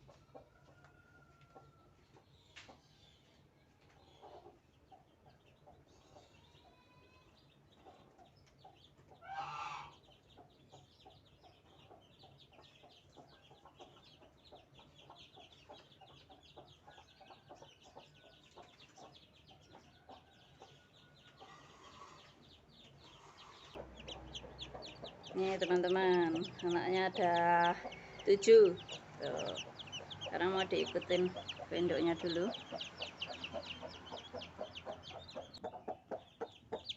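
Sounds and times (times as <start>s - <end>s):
chicks peeping: 0.0s - 36.9s
hen clucking: 7.8s - 36.9s.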